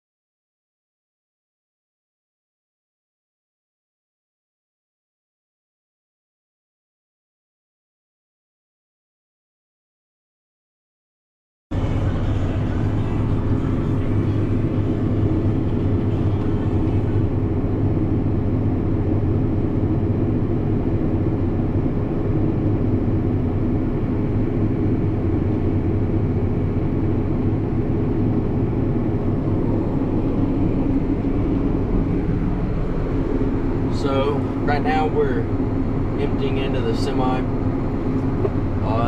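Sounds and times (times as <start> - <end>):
tractor diesel engine droning: 11.7 - 39.0.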